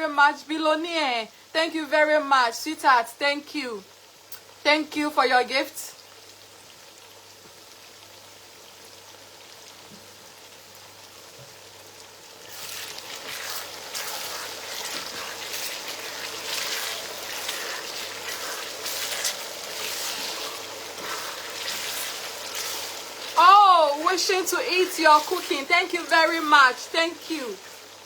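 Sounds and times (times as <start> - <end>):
stew sizzling in oil: 0.0 - 28.0.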